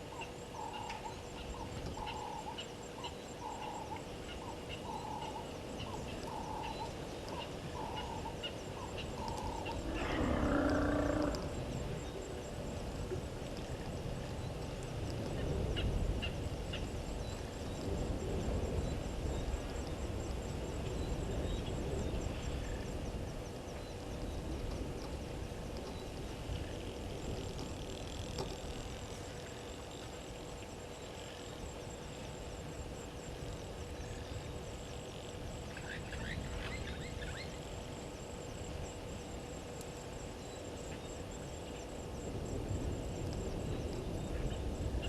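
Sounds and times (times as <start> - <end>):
insects ticking: 0.0 - 45.0
birds calling: 0.1 - 12.3.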